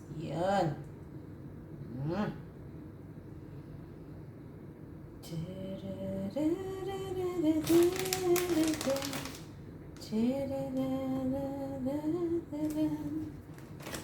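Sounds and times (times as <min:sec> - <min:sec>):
rustling crinkling noise: 0:07.6 - 0:09.6, 0:12.6 - 0:14.0.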